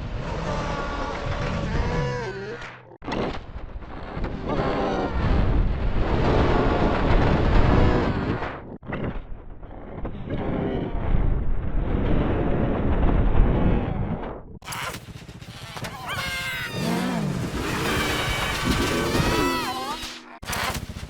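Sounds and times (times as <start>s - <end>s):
distorted booming rumble: 11.0s - 21.0s.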